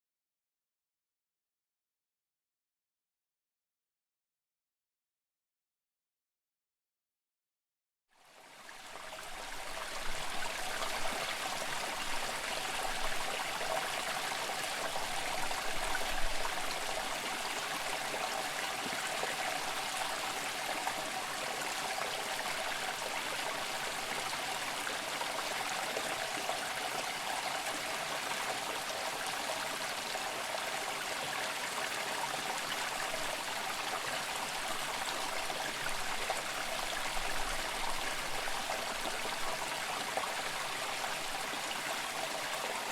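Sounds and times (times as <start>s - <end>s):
stream water rushing: 9.5s - 42.9s.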